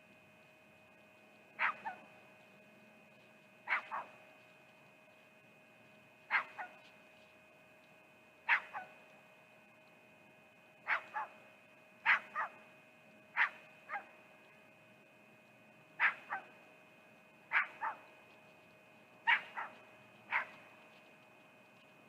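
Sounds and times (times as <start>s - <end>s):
faint electrical hum: 0.0s - 22.0s
animal barking in double yelps: 1.6s - 2.1s, 3.7s - 4.2s, 6.3s - 6.8s, 8.5s - 8.9s, 10.8s - 11.4s, 12.0s - 12.6s, 13.4s - 14.1s, 16.0s - 16.5s, 17.5s - 18.0s, 19.2s - 20.7s.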